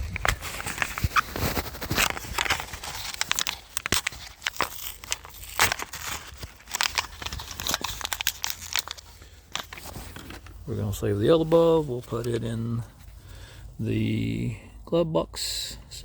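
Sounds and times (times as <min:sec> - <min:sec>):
packaging crinkling: 0:00.0 - 0:10.6.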